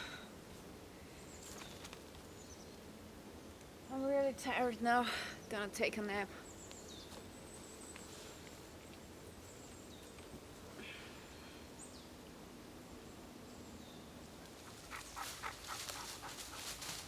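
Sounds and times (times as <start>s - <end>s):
close rustling and crackling: 14.4s - 17.0s.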